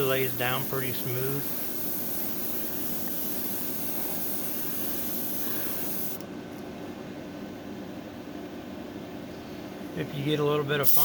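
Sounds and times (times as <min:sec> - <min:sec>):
airbrush spraying hiss: 0:00.0 - 0:06.2
steady low hum: 0:00.0 - 0:11.0.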